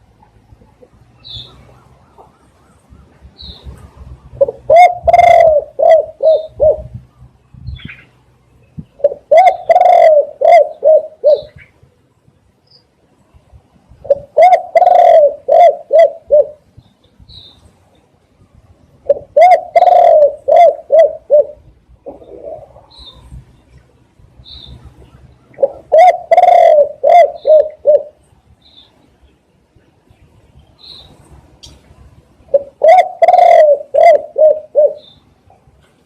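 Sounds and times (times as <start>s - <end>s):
small birds chirping: 0.2s - 5.4s, 6.3s - 9.8s, 16.7s - 18.1s, 22.0s - 32.0s, 34.6s - 35.6s
dove cooing: 4.3s - 7.0s, 9.0s - 11.7s, 14.0s - 16.6s, 19.0s - 23.3s, 25.5s - 28.2s, 32.5s - 35.2s.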